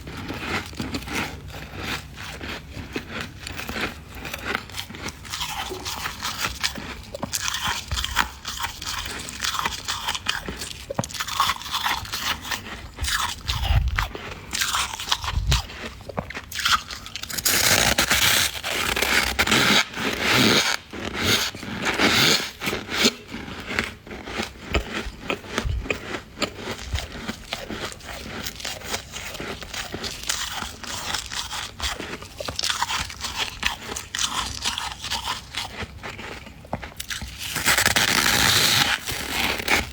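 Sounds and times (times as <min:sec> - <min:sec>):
frost being scraped and crunched: 0:13.3 - 0:16.0, 0:17.1 - 0:23.2, 0:37.0 - 0:39.9.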